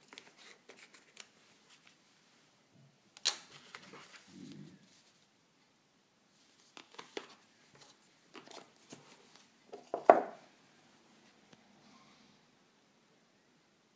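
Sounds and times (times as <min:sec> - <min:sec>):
knock: 0:09.9 - 0:10.4.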